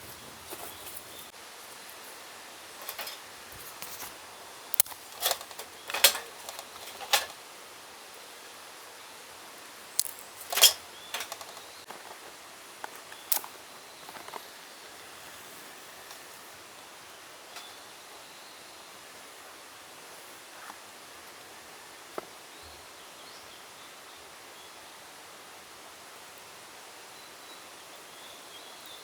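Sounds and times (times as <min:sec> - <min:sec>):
outdoor hiss: 0:00.0 - 0:29.0
small hard objects clicking: 0:04.7 - 0:07.3, 0:10.0 - 0:11.7, 0:12.8 - 0:13.5.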